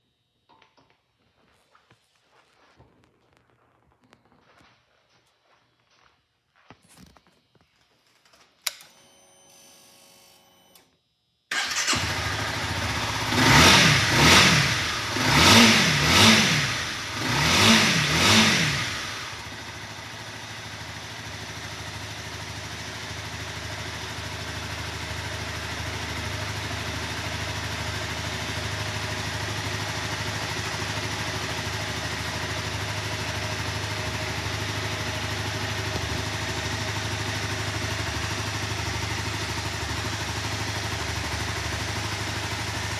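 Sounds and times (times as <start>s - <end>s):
faint starter whir: 11.5s - 21.0s, 31.1s - 42.9s
motorcycle engine revving and idling: 11.5s - 42.9s.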